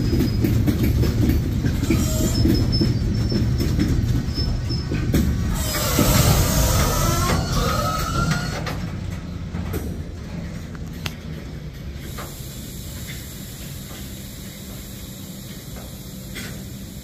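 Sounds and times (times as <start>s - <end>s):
steel wheels squealing: 0.0s - 8.8s
low train rumble: 0.0s - 17.0s
train cars clanking: 0.0s - 17.0s.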